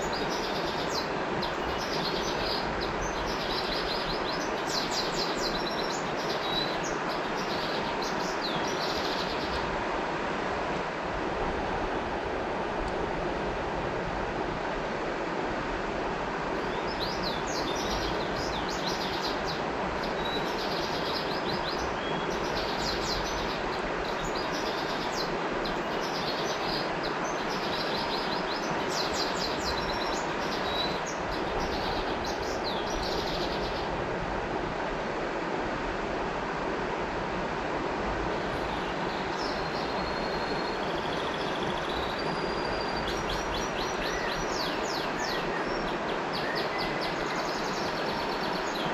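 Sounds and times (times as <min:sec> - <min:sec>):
small bird singing: 0:00.0 - 0:09.6, 0:16.6 - 0:33.9, 0:38.6 - 0:48.9
flowing river water: 0:00.0 - 0:48.9.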